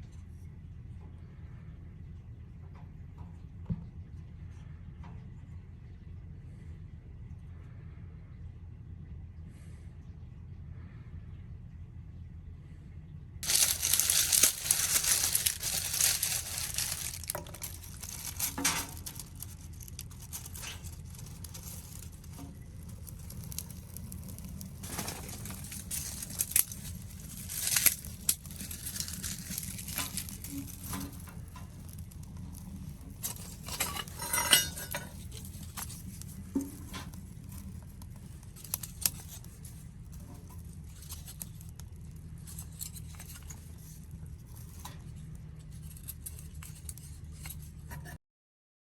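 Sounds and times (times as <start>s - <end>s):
steady low hum: 0.0s - 47.9s
light clinks and knocks: 13.4s - 37.8s
rustling and crinkling: 13.4s - 48.2s.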